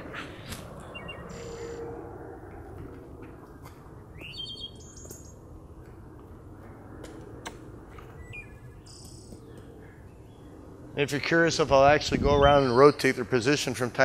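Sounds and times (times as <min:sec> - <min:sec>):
low outdoor background noise: 0:00.0 - 0:14.0
small birds chirping: 0:00.4 - 0:01.8, 0:03.5 - 0:06.4, 0:07.4 - 0:11.2.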